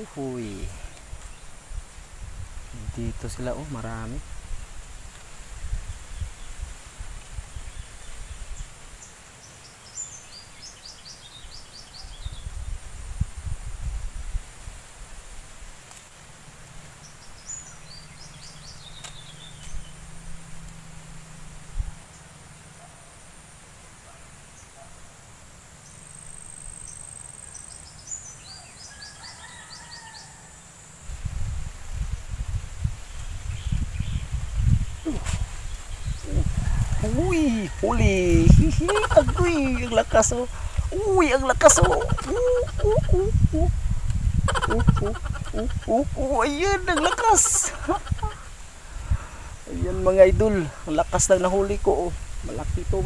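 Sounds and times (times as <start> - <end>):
wind rumble on microphone: 0.0 - 9.1, 11.3 - 15.8, 16.8 - 22.3, 31.0 - 53.0
songbird chirping: 0.0 - 12.9, 15.9 - 31.0, 31.9 - 53.0
faint steady high hiss: 0.0 - 53.0.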